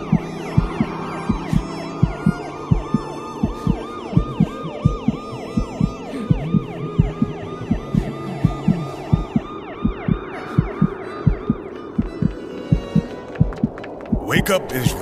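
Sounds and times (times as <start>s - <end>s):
low thumping beat: 0.0s - 14.5s.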